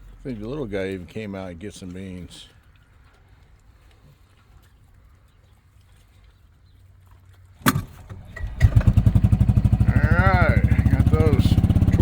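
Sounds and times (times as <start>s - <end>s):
sharp thump: 7.6s - 8.0s
engine puttering: 7.6s - 12.0s.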